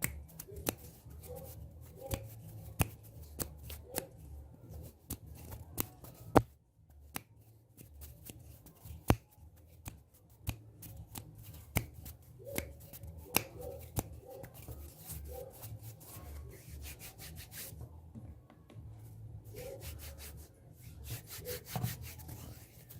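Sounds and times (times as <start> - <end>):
hands rubbing: 0.0 - 4.2, 7.1 - 18.0, 19.5 - 22.9
sharp snaps and clicks: 0.0 - 4.2, 4.8 - 15.3.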